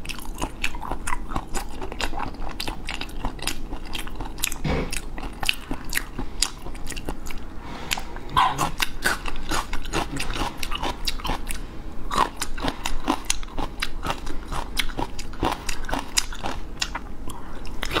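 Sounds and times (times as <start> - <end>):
person chewing wet clicks: 0.0 - 7.4, 12.2 - 18.0.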